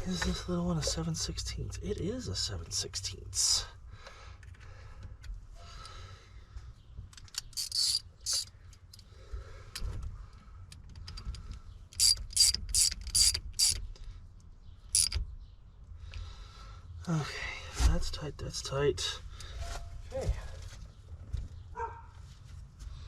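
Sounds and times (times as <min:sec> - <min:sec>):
socket ratchet wrench clicking: 0:07.2 - 0:09.0, 0:11.1 - 0:13.9, 0:14.9 - 0:15.2.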